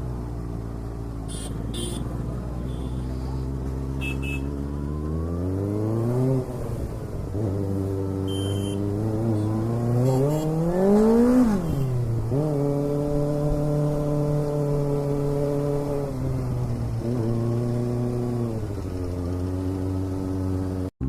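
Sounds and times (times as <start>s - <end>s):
motorcycle engine accelerating: 1.3s - 21.0s.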